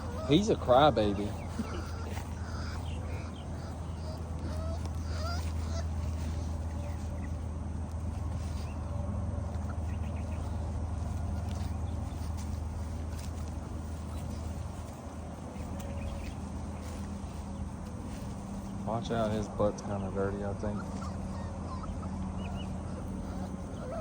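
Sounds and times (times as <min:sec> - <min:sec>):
puppy whimpering: 0:00.0 - 0:24.0
steady low hum: 0:00.0 - 0:24.0.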